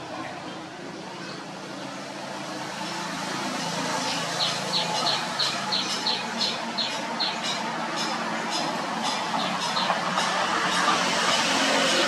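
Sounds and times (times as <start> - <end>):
bird chirping: 4.0 - 7.6, 9.1 - 10.0.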